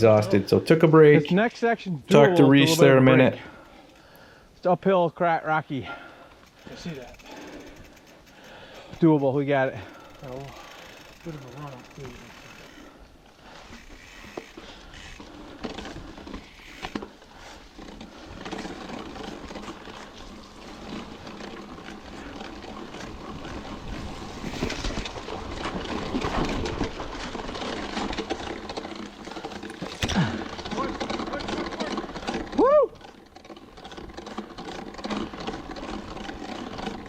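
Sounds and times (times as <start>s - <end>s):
bike tyre and drivetrain noise: 0.0s - 37.0s
knocks and rattles: 17.8s - 37.0s.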